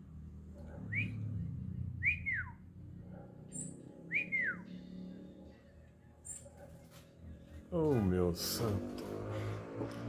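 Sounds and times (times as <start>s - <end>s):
bird whistled calls: 2.0s - 2.6s.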